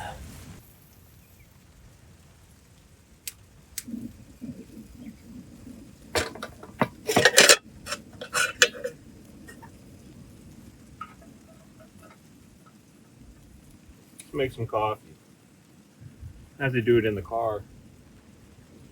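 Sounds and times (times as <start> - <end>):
rustling: 3.6 - 15.3.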